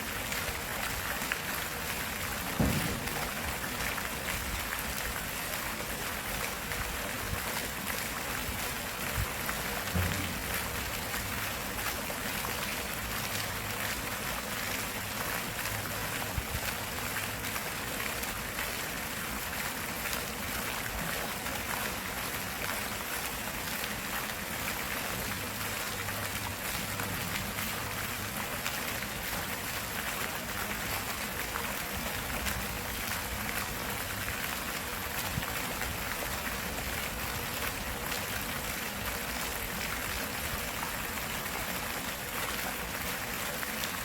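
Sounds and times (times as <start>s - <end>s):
stream water flowing: 0.0s - 44.0s.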